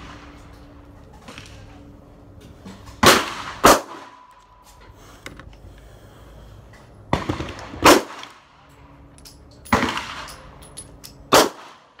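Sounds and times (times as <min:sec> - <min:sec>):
pistol gunshots: 0:03.0 - 0:04.2, 0:07.1 - 0:08.3, 0:11.3 - 0:11.9.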